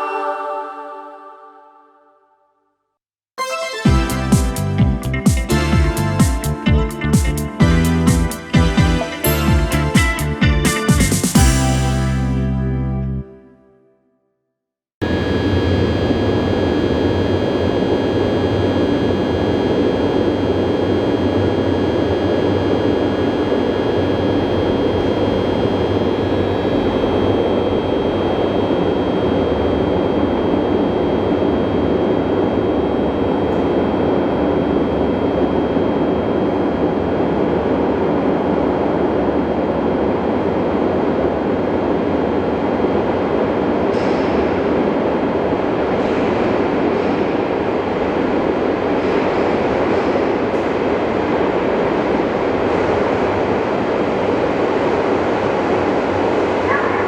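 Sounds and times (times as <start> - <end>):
electric train hum: 3.9 - 13.2, 15.0 - 56.8
thin high whine: 15.0 - 38.6.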